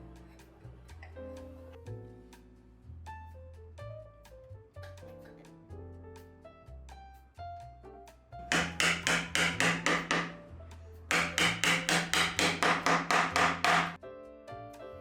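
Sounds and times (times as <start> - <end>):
soft background music: 0.0 - 15.0
rapid hammer blows: 8.5 - 10.4, 11.1 - 14.0.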